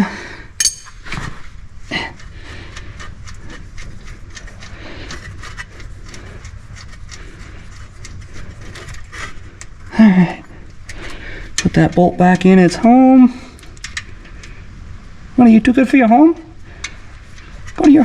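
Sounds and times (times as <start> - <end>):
metallic clicks and taps of tools: 13.7 - 14.1.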